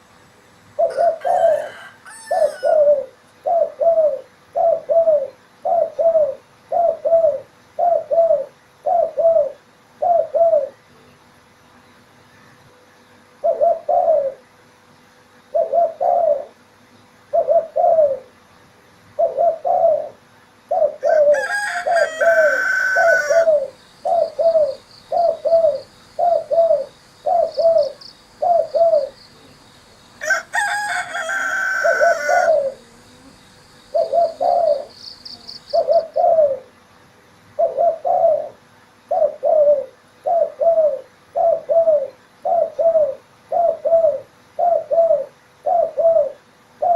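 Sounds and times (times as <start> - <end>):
rooster crowing: 0.8 - 3.1, 21.0 - 23.8, 30.2 - 32.8
dove cooing: 0.8 - 10.8, 13.4 - 14.5, 15.5 - 16.6, 17.3 - 18.4, 19.2 - 36.8, 37.6 - 46.9.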